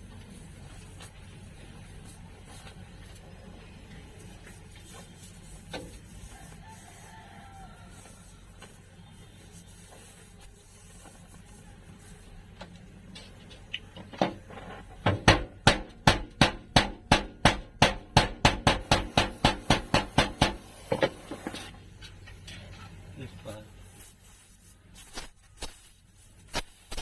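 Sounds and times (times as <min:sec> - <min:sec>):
hammer striking sheet metal: 0:15.0 - 0:21.2.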